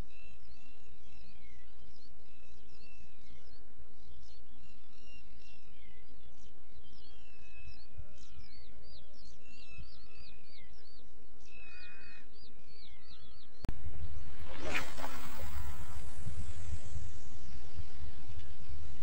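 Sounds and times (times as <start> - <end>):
low steady background rumble: 0.0 - 19.0
loud steady rushing noise: 13.7 - 19.0.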